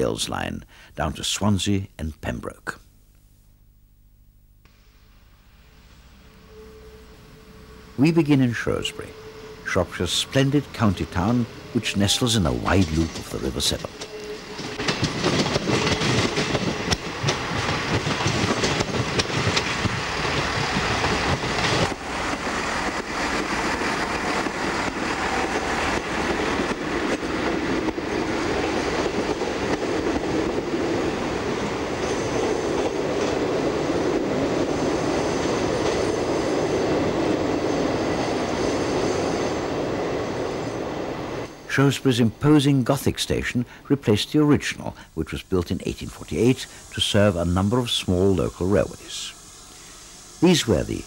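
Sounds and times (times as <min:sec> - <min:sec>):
faint high ringing tones: 0:03.3 - 0:14.9, 0:34.7 - 0:51.0
train rail rumble: 0:05.8 - 0:51.0
train wheels clacking over rail joints: 0:12.6 - 0:31.0.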